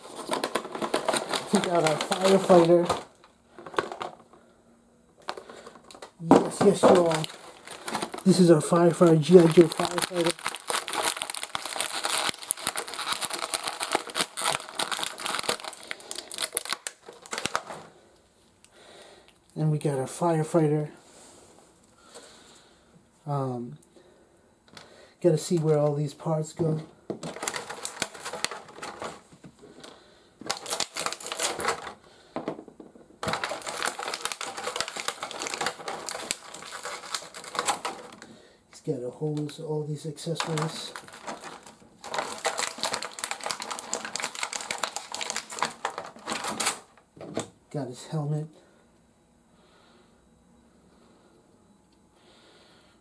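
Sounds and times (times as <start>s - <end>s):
packaging crinkling and rustling: 0.0s - 4.4s, 5.2s - 18.0s, 24.8s - 32.0s, 33.2s - 47.1s.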